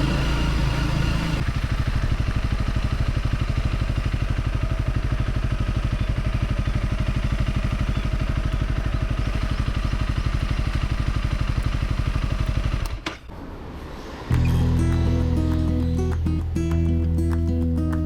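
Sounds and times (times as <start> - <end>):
motorcycle engine idling: 0.0 - 13.2
engine cut-off click: 10.4 - 13.4.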